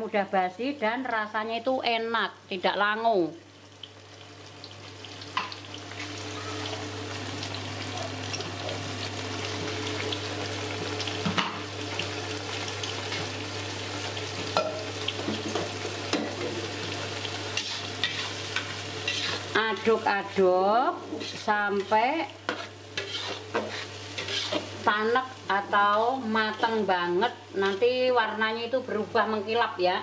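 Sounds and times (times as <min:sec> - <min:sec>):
paste sizzling in hot oil: 0:03.6 - 0:27.9
spatula stirring: 0:17.6 - 0:19.6, 0:21.1 - 0:24.8.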